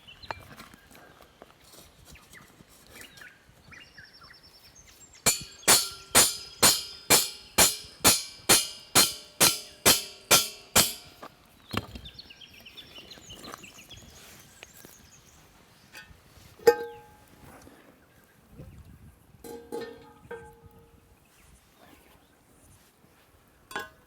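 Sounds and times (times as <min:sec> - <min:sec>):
evenly spaced ringing strikes: 0:05.3 - 0:11.2
bird calls: 0:11.5 - 0:16.0.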